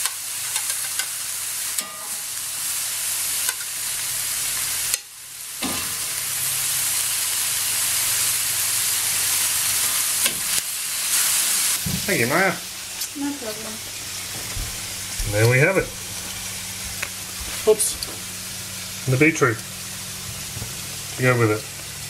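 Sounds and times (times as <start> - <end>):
spatula clicking against wok: 0.0 - 1.1
food sizzling in a wok: 0.0 - 22.0.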